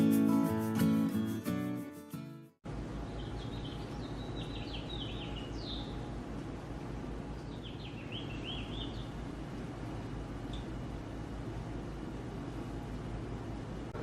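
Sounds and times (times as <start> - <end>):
songbird chirping: 3.0 - 6.2, 7.4 - 9.2.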